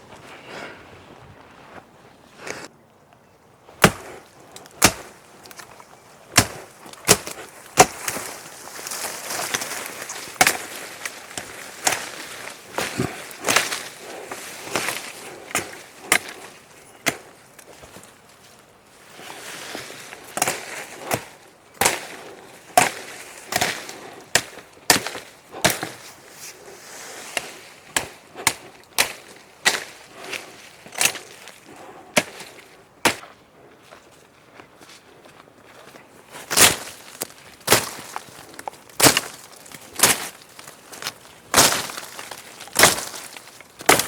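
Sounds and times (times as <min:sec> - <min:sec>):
wood being chopped: 0:03.8 - 0:18.1, 0:20.2 - 0:26.1, 0:27.4 - 0:33.4, 0:36.5 - 0:44.0.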